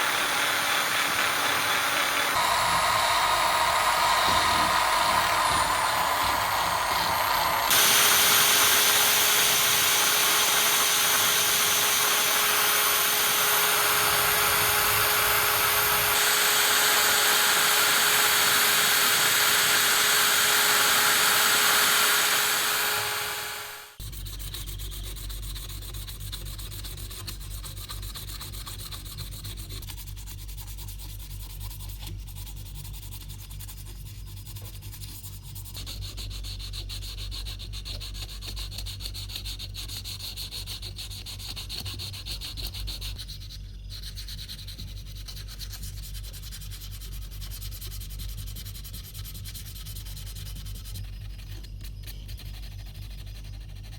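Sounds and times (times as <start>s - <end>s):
power sander on metal: 0.0s - 24.0s.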